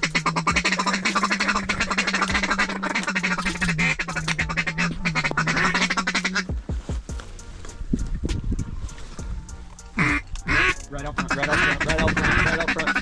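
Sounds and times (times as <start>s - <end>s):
duck call feeding chuckle: 0.0s - 6.5s, 10.0s - 13.0s.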